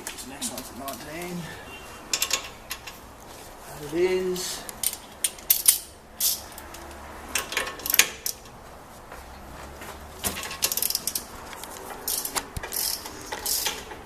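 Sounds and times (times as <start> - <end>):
metal tools clinking: 4.8 - 6.8, 10.3 - 11.3, 11.9 - 13.9
socket ratchet clicking: 10.6 - 11.3, 12.1 - 13.9.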